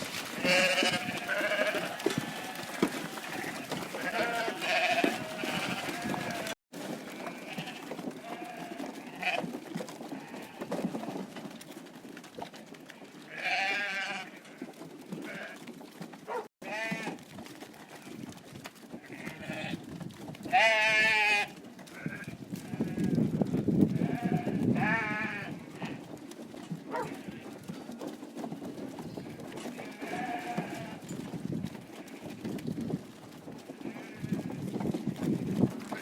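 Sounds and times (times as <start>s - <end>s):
sheep bleating: 0.2s - 9.4s, 13.3s - 14.6s, 16.6s - 17.2s, 20.5s - 23.2s, 23.9s - 26.0s, 29.7s - 31.0s.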